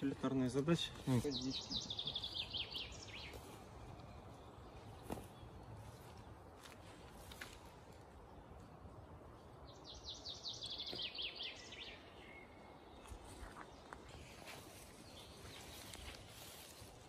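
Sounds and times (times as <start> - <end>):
songbird trilling: 1.2 - 3.4.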